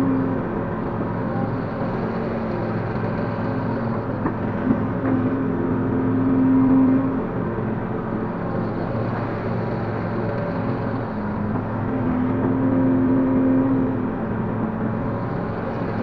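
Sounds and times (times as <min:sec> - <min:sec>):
hydraulic excavator engine running: 0:00.0 - 0:16.0.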